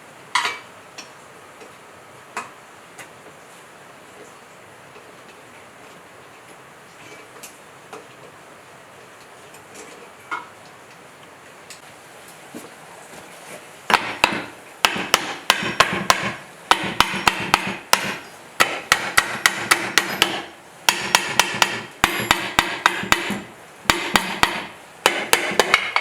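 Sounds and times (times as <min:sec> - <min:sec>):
hammer striking metal: 0:13.9 - 0:26.0.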